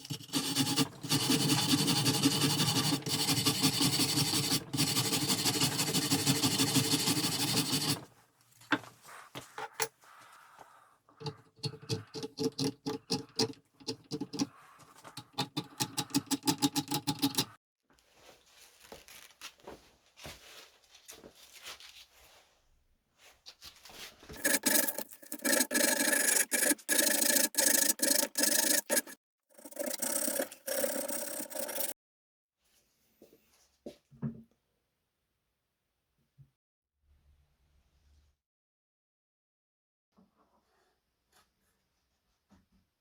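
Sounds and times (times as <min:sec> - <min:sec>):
hand rubbing on wood: 0:24.4 - 0:31.9.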